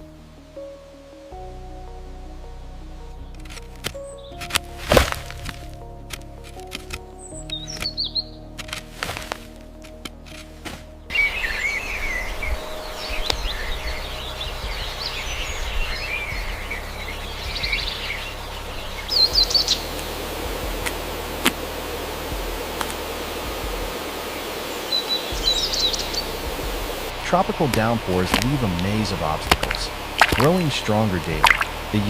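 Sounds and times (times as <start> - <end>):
steady background hiss: 0.0 - 32.0
birds chirping and calling: 7.2 - 8.5, 11.1 - 21.6, 22.3 - 27.1.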